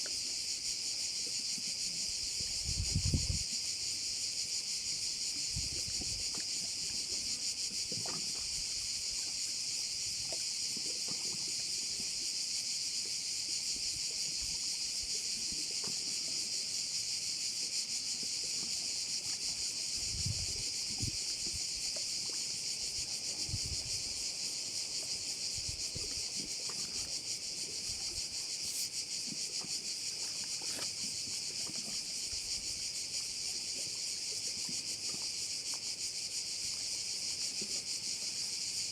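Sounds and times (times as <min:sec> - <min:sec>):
crickets chirring: 0:00.0 - 0:38.9
low gusts of wind: 0:02.4 - 0:03.5, 0:20.0 - 0:21.6, 0:23.3 - 0:24.2.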